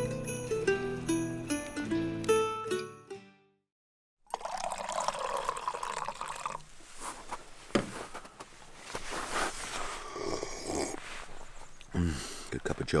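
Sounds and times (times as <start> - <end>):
liquid pouring and dripping: 4.3 - 6.7.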